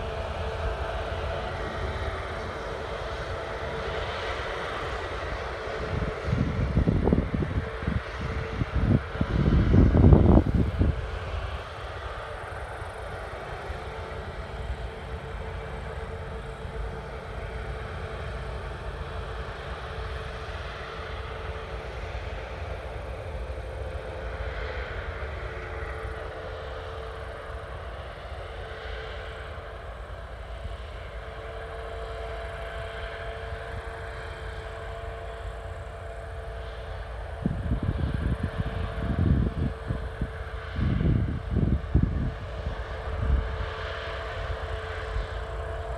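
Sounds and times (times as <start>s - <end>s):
harvest machinery droning: 0.0s - 45.9s
wind buffeting microphone: 5.3s - 12.1s, 37.2s - 43.7s.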